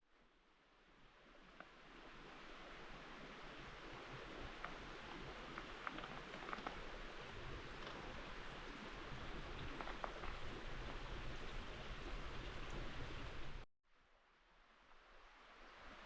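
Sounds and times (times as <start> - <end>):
river flowing: 0.2 - 16.0
faint ticks: 1.5 - 1.8, 4.5 - 8.2, 9.5 - 11.1.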